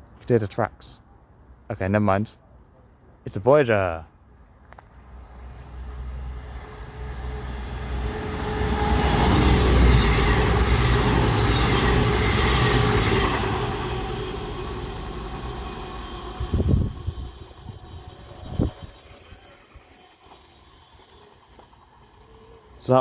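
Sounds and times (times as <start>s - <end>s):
diesel train engine hum: 1.0s - 23.0s
wheels on rails: 4.6s - 23.0s.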